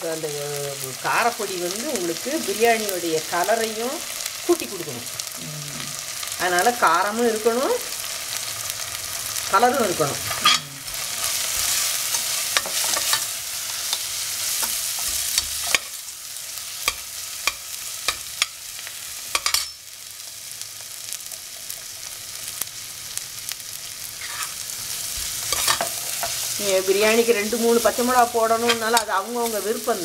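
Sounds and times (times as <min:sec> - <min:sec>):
food sizzling in oil: 0:00.0 - 0:30.0
metal ladle scraping pot: 0:24.2 - 0:24.6.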